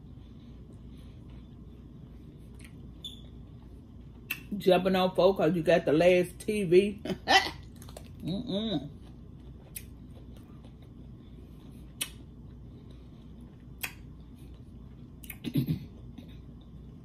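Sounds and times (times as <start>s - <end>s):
person chewing crunchy cucumber: 8.9s - 12.6s.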